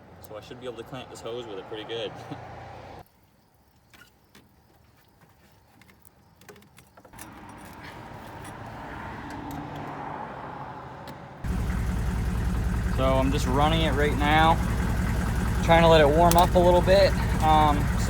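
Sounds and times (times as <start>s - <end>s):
truck engine idling: 11.3s - 18.0s
handling clicks: 16.2s - 16.6s.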